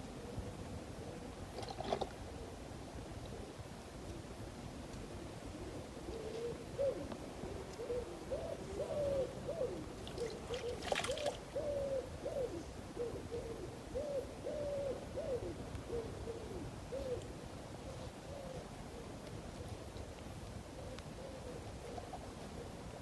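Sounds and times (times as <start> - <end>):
bird cooing calls: 5.2 - 19.8, 20.7 - 22.8.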